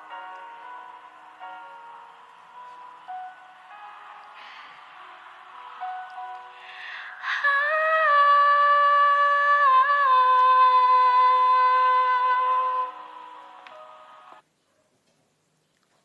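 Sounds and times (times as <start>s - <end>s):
faint backing music: 0.0s - 15.8s
woman singing a long note: 7.2s - 13.2s.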